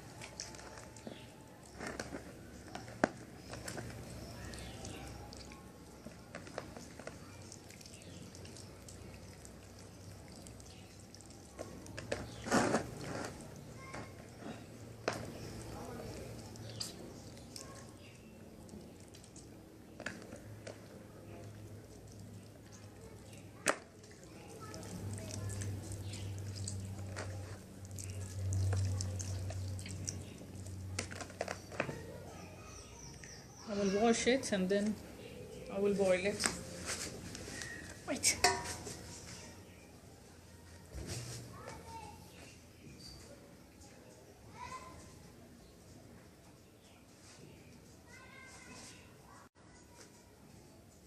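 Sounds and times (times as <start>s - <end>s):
soft wet handling sounds: 0.0s - 51.0s
kitchen clicks: 38.3s - 38.9s.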